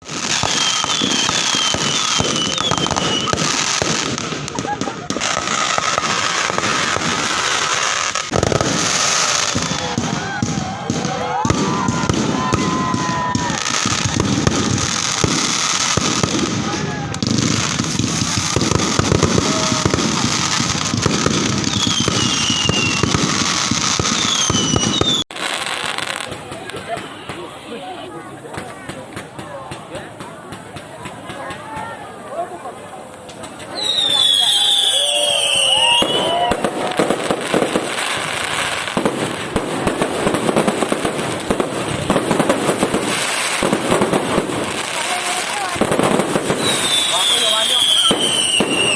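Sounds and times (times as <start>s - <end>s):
firework bangs and crackles: 0.0s - 48.9s
high falling whistles: 0.4s - 3.4s, 21.6s - 23.2s, 33.7s - 36.6s, 46.6s - 48.9s.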